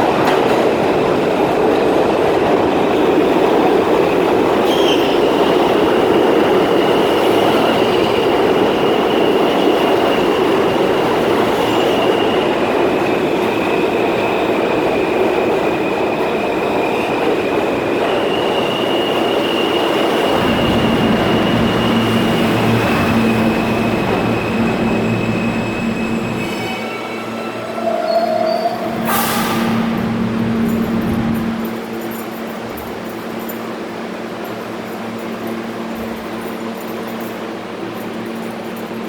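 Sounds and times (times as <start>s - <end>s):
subway train rumbling: 0.0s - 39.0s.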